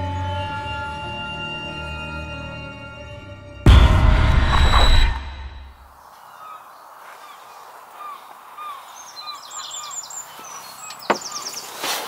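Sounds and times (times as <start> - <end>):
birds chirping: 4.4 - 12.0
bird trill: 6.3 - 11.8.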